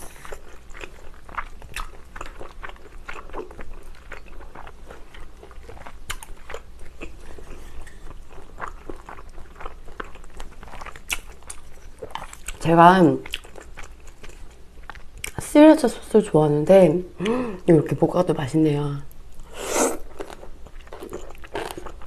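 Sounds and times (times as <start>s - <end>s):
wet chewing and biting: 0.1s - 12.6s.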